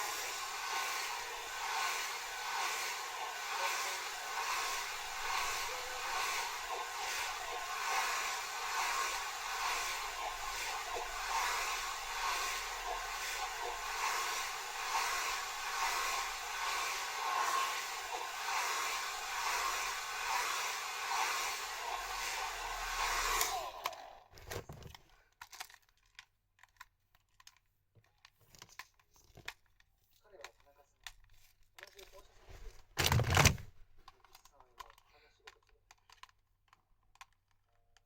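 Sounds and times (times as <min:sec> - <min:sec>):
hair dryer blowing: 0:00.0 - 0:24.3.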